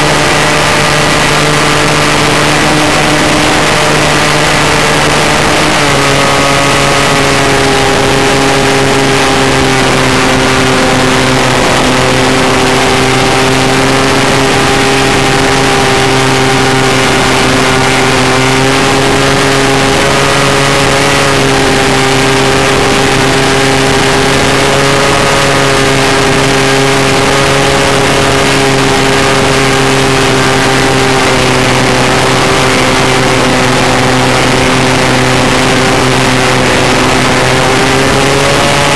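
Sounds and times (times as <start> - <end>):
model airplane engine running: 0.0 - 38.9.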